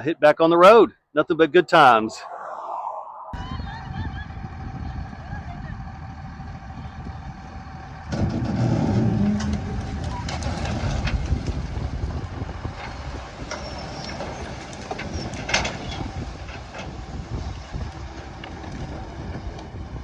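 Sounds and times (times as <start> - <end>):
heavy vehicle engine rumbling: 3.4 - 20.0.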